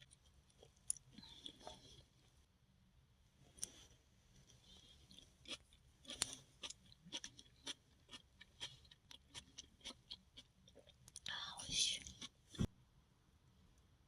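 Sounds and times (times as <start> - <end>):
person chewing crunchy food: 0.0 - 2.1, 4.5 - 11.3.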